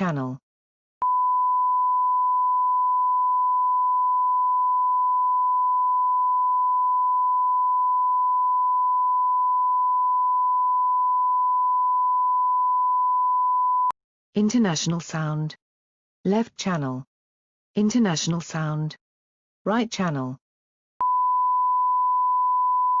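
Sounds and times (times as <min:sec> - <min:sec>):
steady sine-wave line-up tone: 0:01.0 - 0:13.9, 0:21.0 - 0:23.0.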